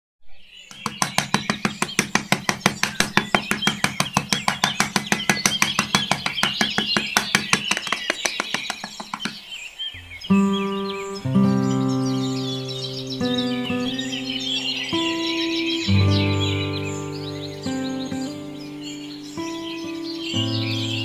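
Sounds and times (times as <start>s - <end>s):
birds chirping: 0.3s - 21.0s
fast even clicking: 0.7s - 9.4s.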